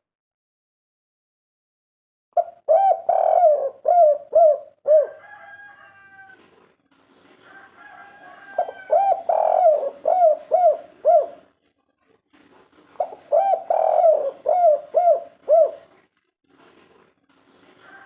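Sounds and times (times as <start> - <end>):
dove cooing: 2.4 - 6.7, 7.5 - 11.6, 12.9 - 16.1.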